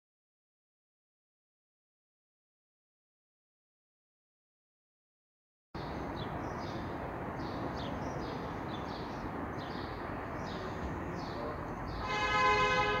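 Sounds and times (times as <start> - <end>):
birds chirping: 5.8 - 13.0
outdoor background hiss: 5.8 - 13.0
train horn: 12.0 - 13.0.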